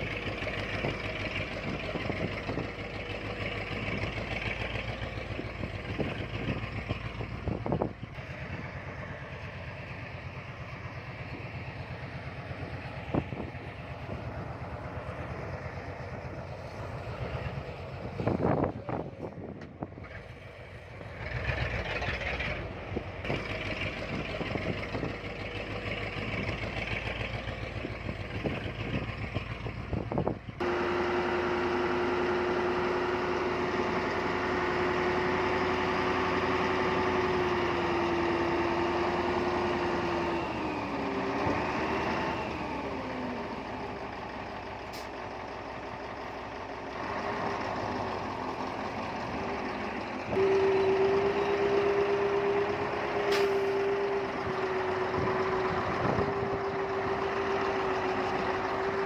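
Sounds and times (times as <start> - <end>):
constant whine: 0.0 - 38.8
diesel engines working: 0.0 - 59.0.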